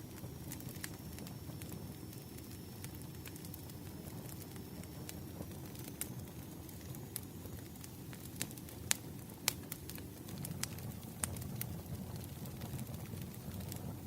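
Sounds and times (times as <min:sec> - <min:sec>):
firewood crackling and popping: 0:00.0 - 0:14.0
low rush of flames: 0:00.0 - 0:14.0.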